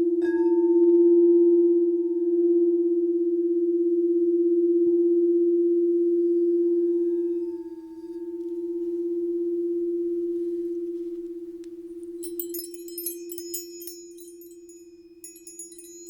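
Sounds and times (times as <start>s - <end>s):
crystal singing bowl ringing: 6.2s - 16.0s.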